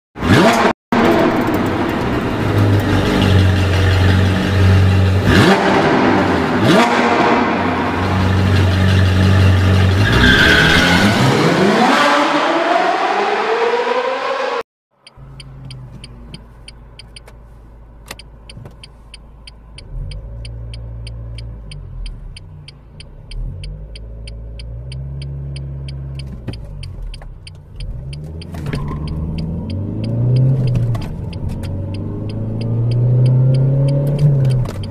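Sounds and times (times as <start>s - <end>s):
relay-like ticking: 18.1s - 34.9s.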